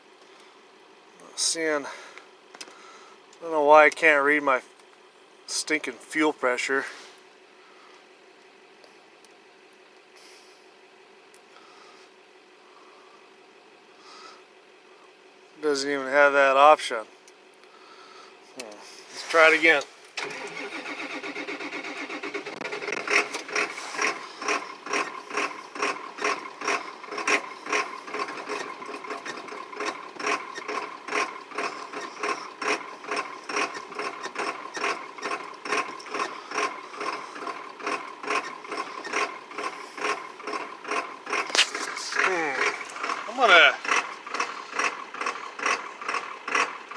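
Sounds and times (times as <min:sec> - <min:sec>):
diesel engine cranking: 0:17.8 - 0:46.9
steady high whine: 0:18.8 - 0:28.5, 0:41.3 - 0:46.0.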